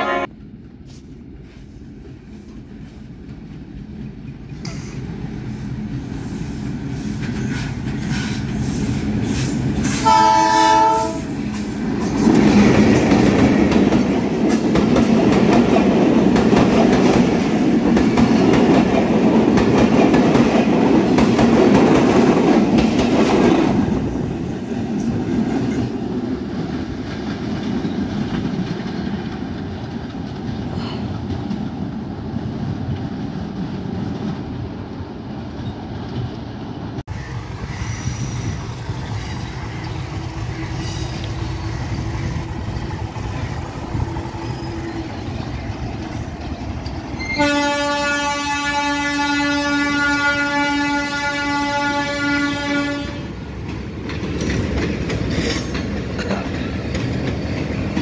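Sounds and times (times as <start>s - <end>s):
train horn: 0.0s - 0.3s, 10.0s - 11.4s, 47.2s - 53.4s
diesel train rumble: 0.0s - 58.0s
wheel-on-rail noise: 25.1s - 47.6s.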